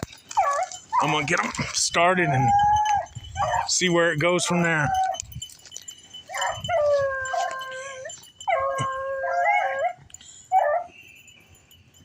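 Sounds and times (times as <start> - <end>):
dog yelp: 0.2 - 3.8, 4.4 - 5.2, 6.3 - 11.0
hound howling: 0.2 - 5.3, 6.2 - 11.0.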